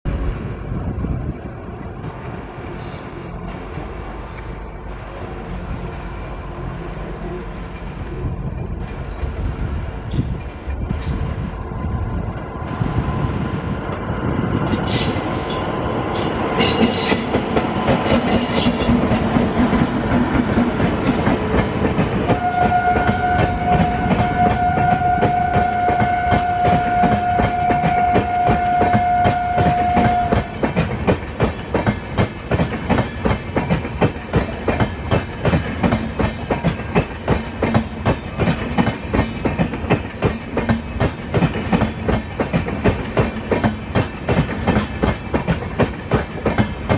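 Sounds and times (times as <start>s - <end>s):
train wheels clattering on rails: 1.8s - 46.9s
locomotive horn blast: 22.3s - 30.5s.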